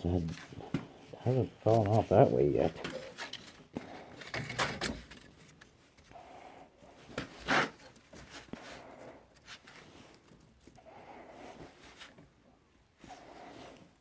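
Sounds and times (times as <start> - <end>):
short scrape: 7.3 - 7.9.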